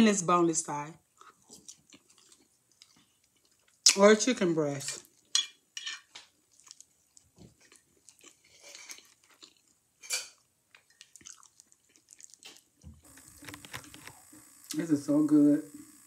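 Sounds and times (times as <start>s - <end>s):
person chewing food: 1.1s - 3.9s, 5.0s - 14.4s
faint crunching: 6.4s - 14.3s.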